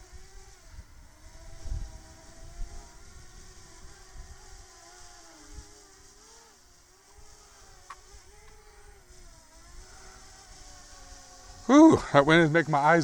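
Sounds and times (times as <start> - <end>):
wind rumbling on microphone: 0.0 - 4.7
drone propellers buzzing: 0.0 - 13.0.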